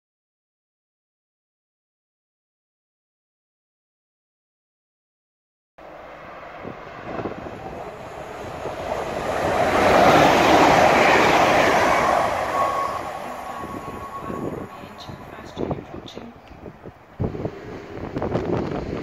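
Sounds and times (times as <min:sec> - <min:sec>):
train wheels rushing on rails: 0:06.1 - 0:19.0
thin steady whine: 0:10.8 - 0:16.5.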